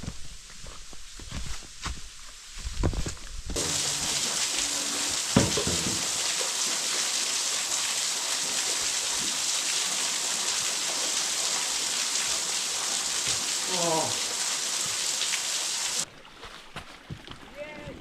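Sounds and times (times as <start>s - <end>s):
waterfall roaring: 3.6s - 16.0s
knock: 5.4s - 6.1s.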